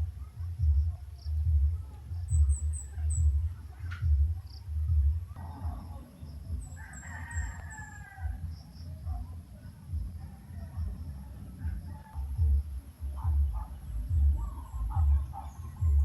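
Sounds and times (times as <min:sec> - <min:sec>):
low rumble: 0:00.0 - 0:07.5, 0:08.2 - 0:16.0
rooster crowing: 0:06.6 - 0:08.6.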